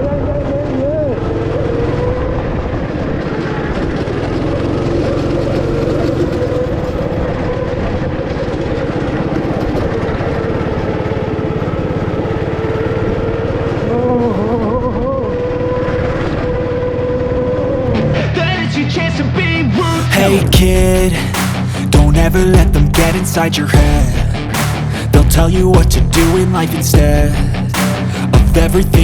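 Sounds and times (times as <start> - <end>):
go-kart engine running: 0.0 - 18.3.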